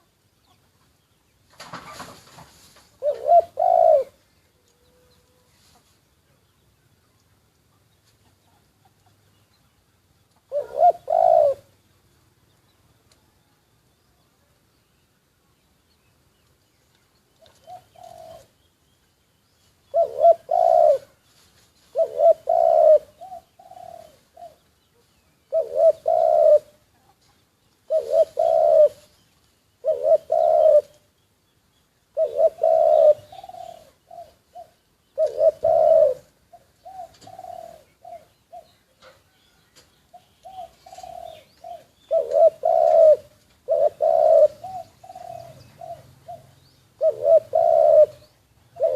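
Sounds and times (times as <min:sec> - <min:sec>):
dove cooing: 0:03.0 - 0:05.5, 0:10.4 - 0:11.8, 0:17.4 - 0:18.6, 0:19.9 - 0:21.2, 0:21.8 - 0:24.7, 0:25.5 - 0:29.1, 0:29.8 - 0:31.1, 0:32.1 - 0:48.9.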